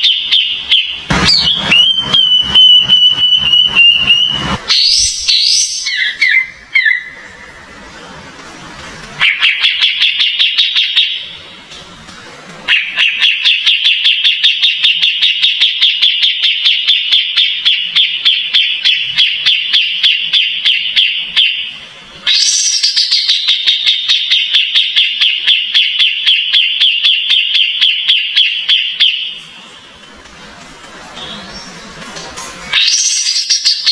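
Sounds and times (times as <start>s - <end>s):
bird singing rapid notes: 0.0s - 7.2s, 22.3s - 29.4s.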